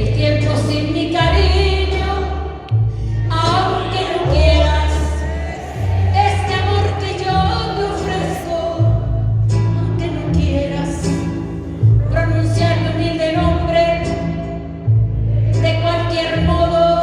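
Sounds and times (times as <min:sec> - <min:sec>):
bass line: 0:00.0 - 0:17.0
live band playing slow ballad: 0:00.0 - 0:17.0
person singing melody: 0:02.8 - 0:14.2.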